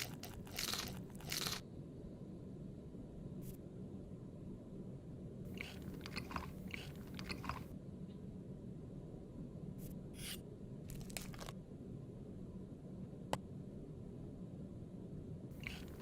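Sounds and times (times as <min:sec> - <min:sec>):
crunchy chewing: 0:00.0 - 0:01.6, 0:05.5 - 0:07.7, 0:15.6 - 0:16.0.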